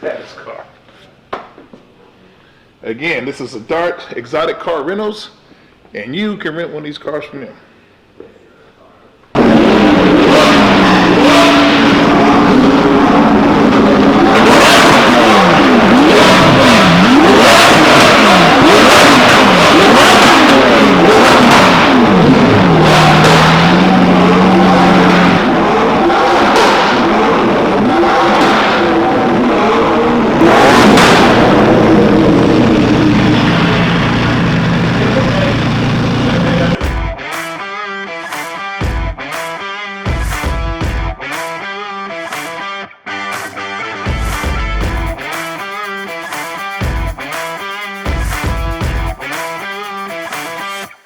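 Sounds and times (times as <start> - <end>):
car engines revving and passing: 9.4 - 36.8.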